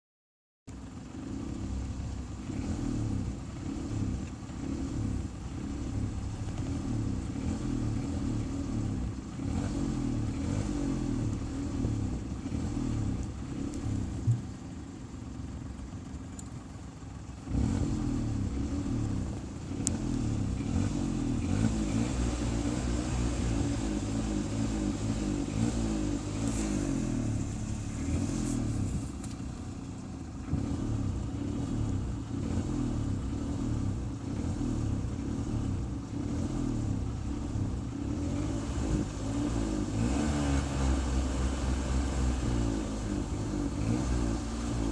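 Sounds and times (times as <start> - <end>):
car engine revving: 1.1 - 16.5, 17.1 - 44.9.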